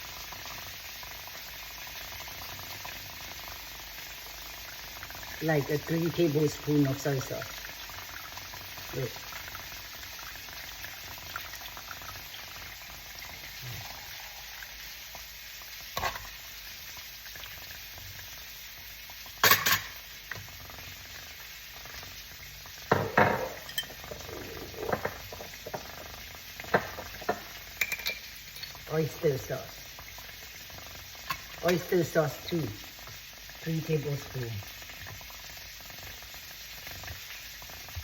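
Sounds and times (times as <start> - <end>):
sauce sizzling in a frying pan: 0.0 - 38.0
spoon knocking against pan: 22.9 - 24.0.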